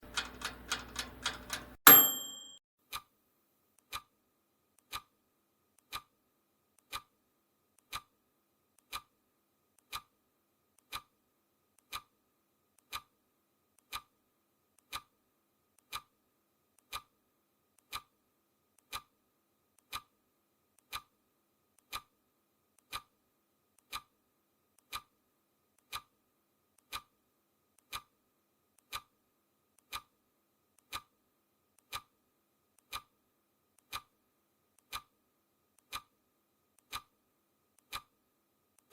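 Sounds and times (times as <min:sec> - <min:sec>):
clock ticking: 0:00.0 - 0:03.1, 0:11.8 - 0:12.1, 0:15.8 - 0:16.1, 0:20.8 - 0:21.1, 0:23.8 - 0:24.1, 0:25.8 - 0:26.1, 0:29.8 - 0:30.1, 0:30.8 - 0:31.1, 0:32.8 - 0:33.1, 0:33.8 - 0:34.1, 0:34.8 - 0:35.1, 0:35.8 - 0:36.1, 0:36.8 - 0:37.1, 0:37.8 - 0:38.1.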